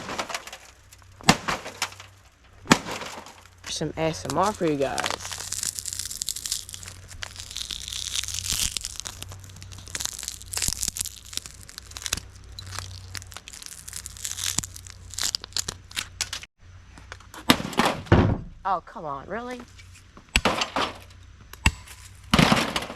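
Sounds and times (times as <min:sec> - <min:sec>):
broken glass crunching: 0:00.0 - 0:16.5.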